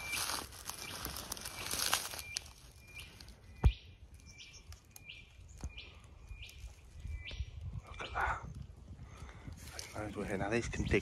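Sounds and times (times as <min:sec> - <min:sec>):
rustling: 0:00.0 - 0:03.4.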